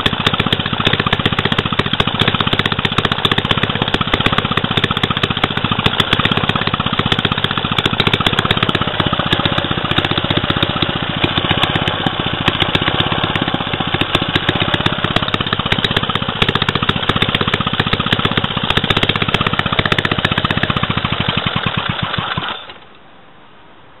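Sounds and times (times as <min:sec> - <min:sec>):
stationary engine running: 0:00.0 - 0:22.8.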